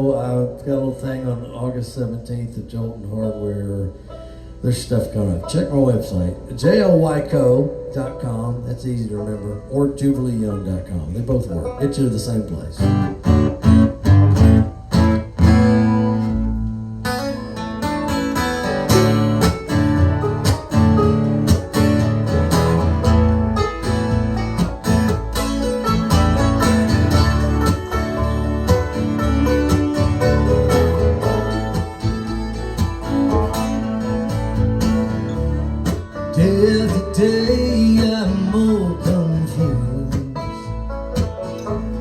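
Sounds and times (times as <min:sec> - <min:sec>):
low bass notes: 0:04.6 - 0:42.0
strummed acoustic guitar: 0:11.6 - 0:42.0
steady beat: 0:18.5 - 0:36.2
person singing: 0:36.3 - 0:40.6.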